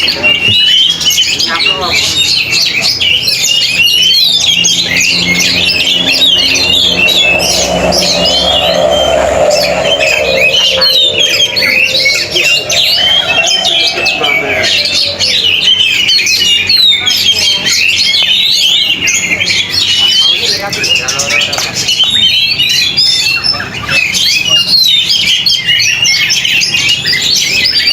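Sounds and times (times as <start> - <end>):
birds singing in chorus: 0.0 - 27.9
low drawn-out tone: 3.5 - 16.2.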